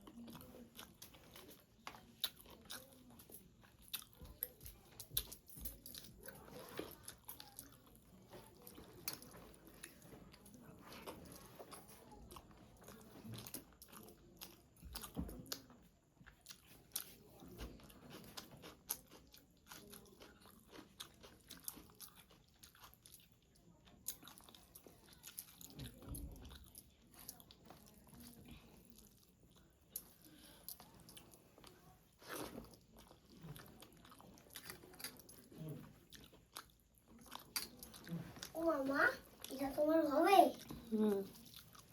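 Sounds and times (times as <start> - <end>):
person chewing food: 0.0 - 38.6, 40.5 - 41.9.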